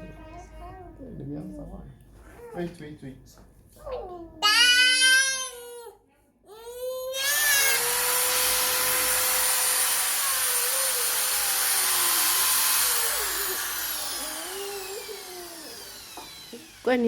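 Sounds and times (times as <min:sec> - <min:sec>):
electric drill whining: 0:07.2 - 0:17.0.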